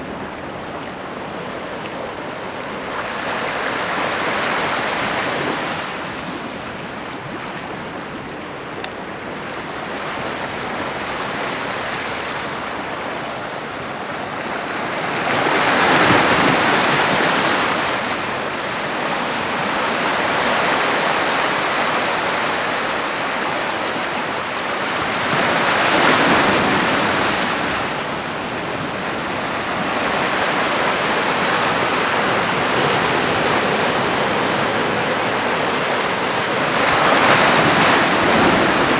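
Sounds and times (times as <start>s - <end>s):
heavy surf breaking: 10.6s - 38.9s.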